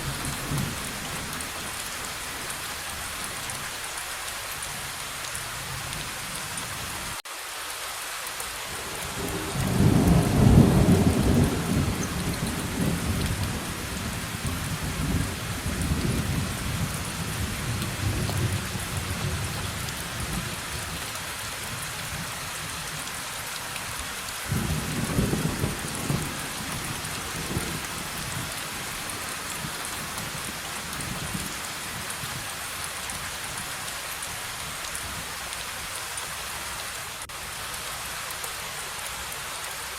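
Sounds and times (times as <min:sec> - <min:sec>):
heavy rain: 0:00.0 - 0:39.9
thunder rumbling: 0:09.1 - 0:20.6, 0:24.5 - 0:32.0.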